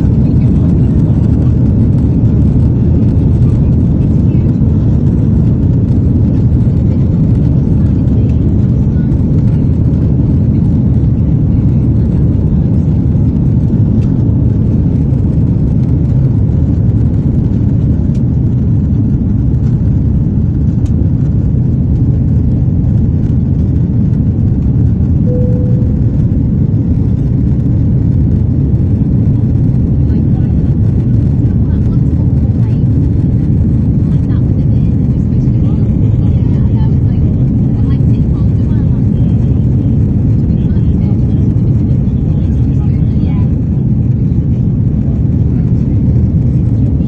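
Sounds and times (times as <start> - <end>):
aircraft take-off rumble: 0.0 - 47.0
brief single tone: 25.2 - 26.4.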